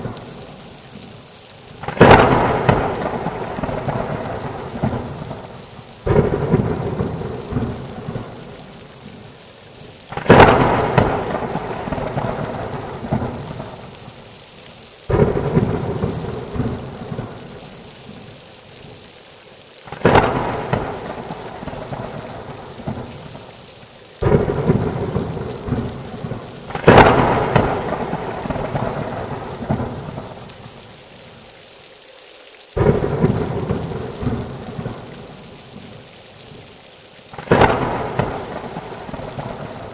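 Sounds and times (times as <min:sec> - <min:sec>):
steady rain: 0:00.0 - 0:39.9
thunderclaps rumbling: 0:01.8 - 0:08.6, 0:10.1 - 0:13.9, 0:15.1 - 0:17.8, 0:19.9 - 0:23.5, 0:24.2 - 0:30.5, 0:32.8 - 0:35.4, 0:37.4 - 0:39.9.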